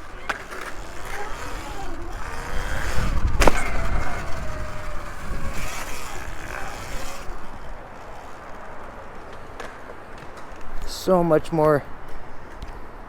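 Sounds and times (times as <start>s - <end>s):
electric dirt bike motor whining: 0.0s - 9.2s.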